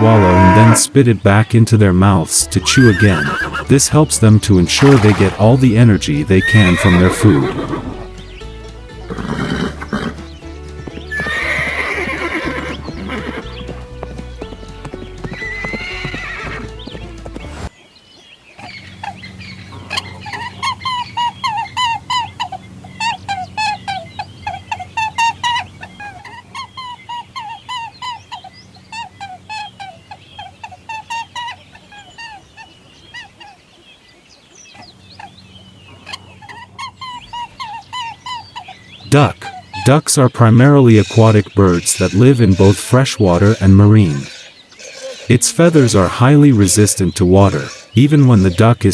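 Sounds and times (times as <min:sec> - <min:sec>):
farm animal calls: 0:00.0 - 0:48.9
background music: 0:01.6 - 0:17.7.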